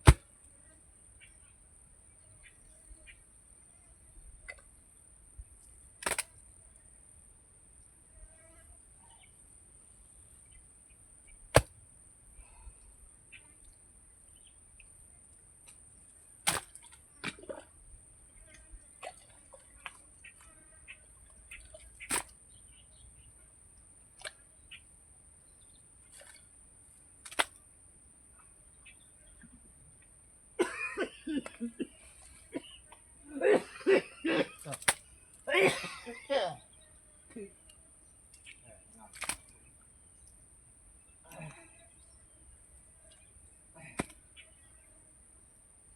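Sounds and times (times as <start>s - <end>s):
tool impacts on earth: 0.0s - 0.2s, 6.0s - 6.3s, 11.5s - 11.7s, 16.4s - 16.8s, 22.1s - 22.3s, 34.7s - 35.0s
faint bird chirps: 0.6s - 4.5s, 12.4s - 15.2s, 28.4s - 29.6s, 36.3s - 40.3s, 41.0s - 45.0s
sharp knocks or slaps: 6.0s - 6.3s, 16.5s - 16.7s.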